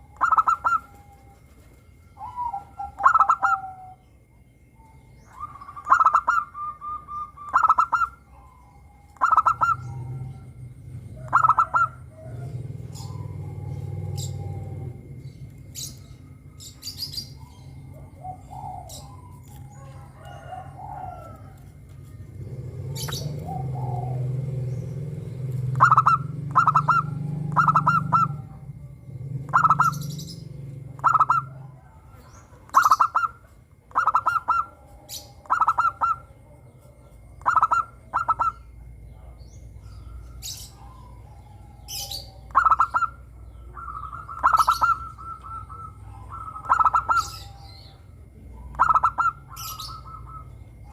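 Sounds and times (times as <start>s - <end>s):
dove cooing: 0.0s - 50.9s
small birds chirping: 0.0s - 50.9s.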